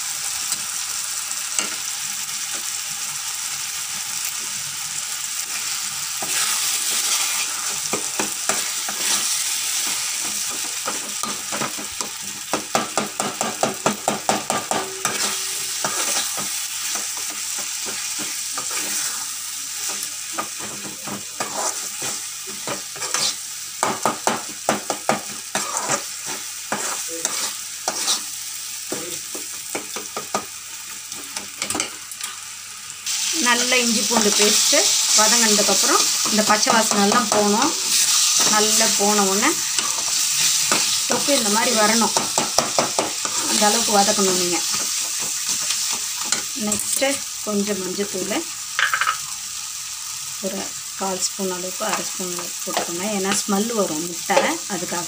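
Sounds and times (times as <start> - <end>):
food sizzling in oil: 0.0 - 55.0
metal ladle scraping pan: 14.8 - 16.4, 25.5 - 28.3.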